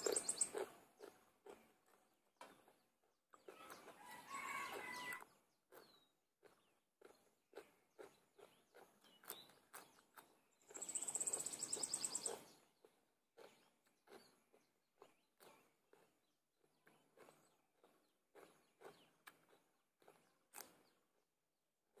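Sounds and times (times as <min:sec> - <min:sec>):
high trilling bird call: 0:00.0 - 0:00.6, 0:10.8 - 0:12.4
crunchy chewing of cucumber: 0:00.0 - 0:22.0.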